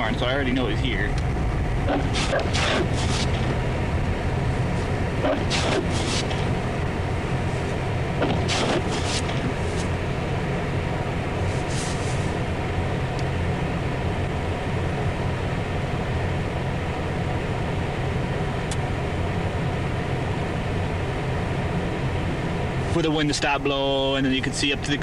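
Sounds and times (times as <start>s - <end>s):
car engine drone: 0.0s - 25.0s
heater fan running: 0.0s - 25.0s
short swishes: 1.9s - 3.6s, 4.6s - 6.7s, 7.5s - 9.9s.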